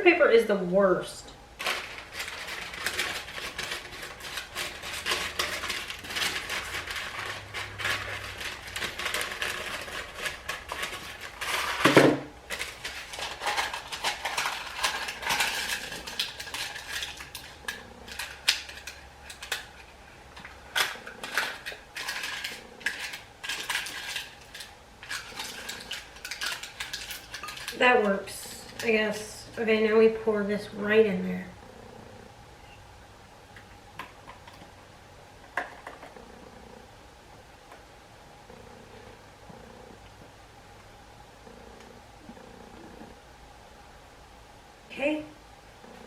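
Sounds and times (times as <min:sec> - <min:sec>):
parchment paper crinkling: 0:01.6 - 0:20.0.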